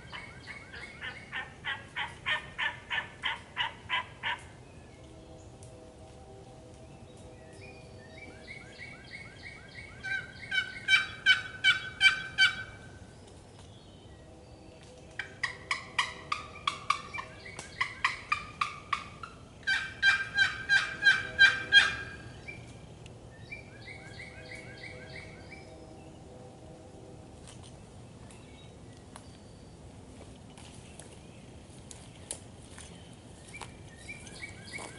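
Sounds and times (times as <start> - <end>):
wild turkey yelping: 0.1 - 4.5, 10.0 - 12.8, 15.2 - 22.3.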